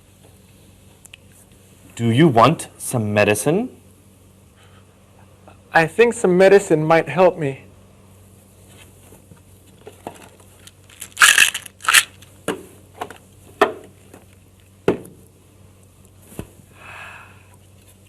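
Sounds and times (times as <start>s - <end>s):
plastic packaging crinkling: 10.2s - 12.3s.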